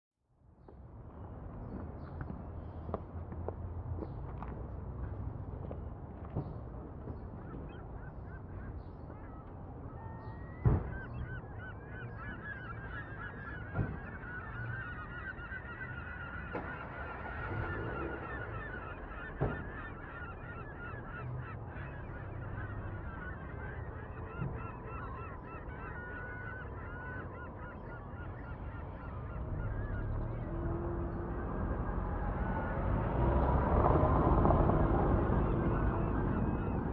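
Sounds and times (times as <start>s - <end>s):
flock of birds calling: 7.4s - 32.9s, 34.8s - 36.9s.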